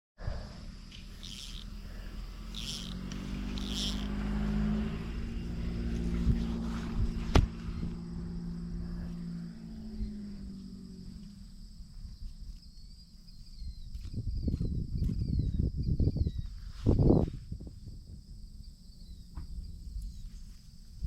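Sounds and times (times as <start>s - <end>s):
engine running: 0.2s - 13.5s.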